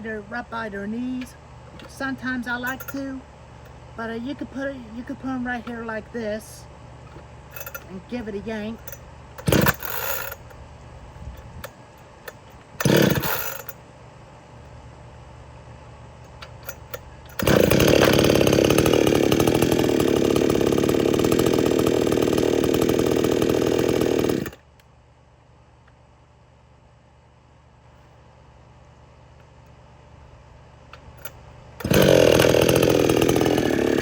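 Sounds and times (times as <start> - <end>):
chainsaw engine running: 1.2 - 3.2, 7.5 - 10.5, 12.8 - 13.8, 16.7 - 24.6, 31.2 - 34.0
chainsaw starter cord pull: 2.6 - 3.1, 7.5 - 7.9, 8.8 - 10.5, 12.3 - 13.8, 16.6 - 24.6, 31.2 - 34.0.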